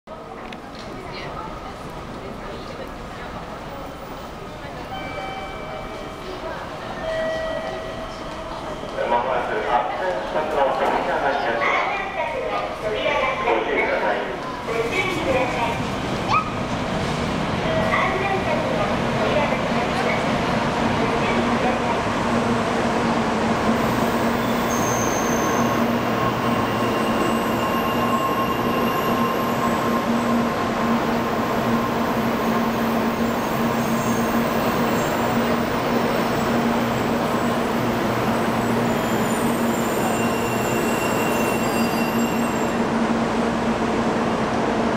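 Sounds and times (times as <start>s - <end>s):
electric train rolling rush: 0.1s - 44.9s.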